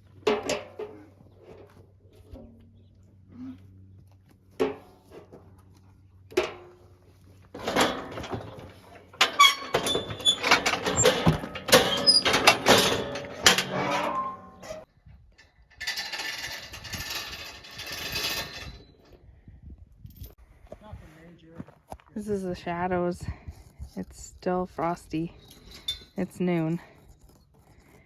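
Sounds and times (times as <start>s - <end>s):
metal chute clanging and rattling: 7.5s - 14.9s.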